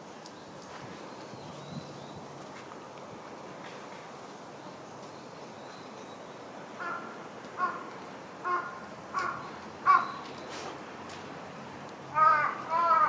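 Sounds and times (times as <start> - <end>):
bird cawing: 6.8 - 10.3, 12.1 - 13.0.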